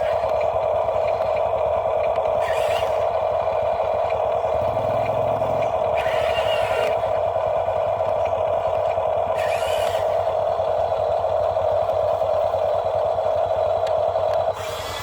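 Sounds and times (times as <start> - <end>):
small electric motor whining: 0.0 - 15.0
hiss bursts: 14.6 - 15.0.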